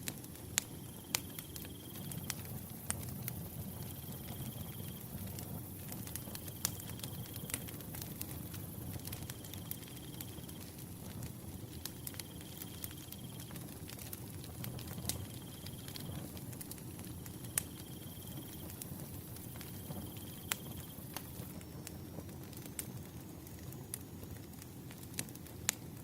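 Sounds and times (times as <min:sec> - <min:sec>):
wood fire crackling: 0:00.0 - 0:26.0
cricket trilling: 0:00.7 - 0:02.5, 0:03.8 - 0:05.2, 0:06.1 - 0:07.6, 0:12.0 - 0:13.4, 0:19.6 - 0:21.7.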